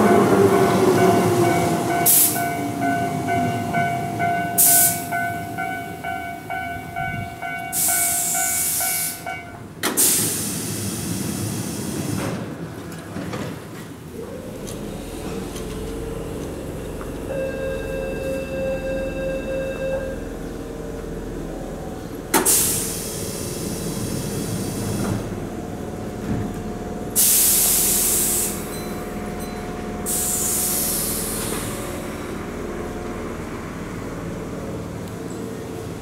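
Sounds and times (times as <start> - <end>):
compressed air hissing: 7.7 - 9.3, 22.4 - 25.0, 27.2 - 28.7, 30.1 - 31.8.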